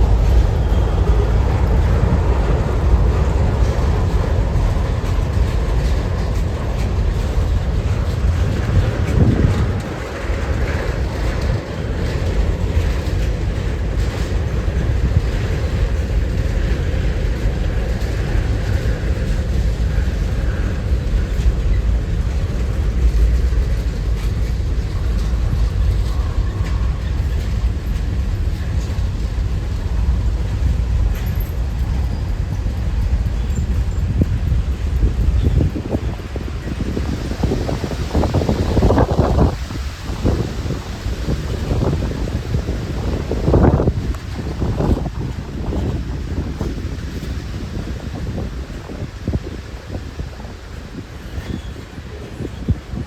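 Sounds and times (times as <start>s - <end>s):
train passing: 0.0s - 53.0s
wind buffeting microphone: 0.0s - 53.0s.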